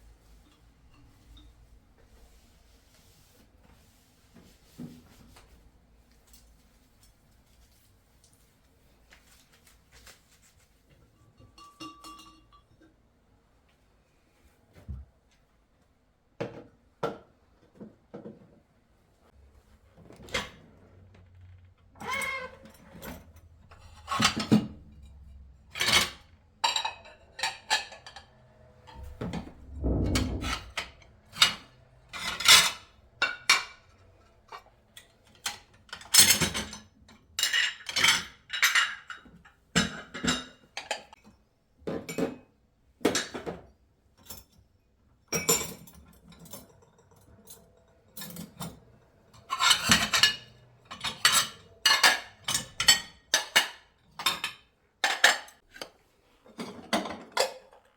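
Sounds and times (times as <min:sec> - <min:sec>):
dishes and cutlery clinking: 0:11.0 - 0:13.0, 0:22.0 - 0:41.3, 0:45.3 - 0:57.9.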